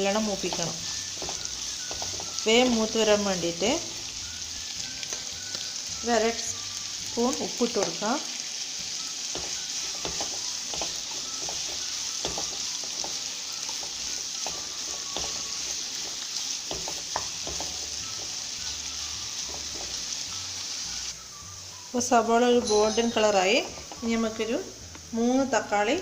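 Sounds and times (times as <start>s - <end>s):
onions sizzling in hot oil: 0.0s - 26.0s
spatula scraping and tapping pan: 0.1s - 3.2s, 5.0s - 5.7s, 9.3s - 20.2s.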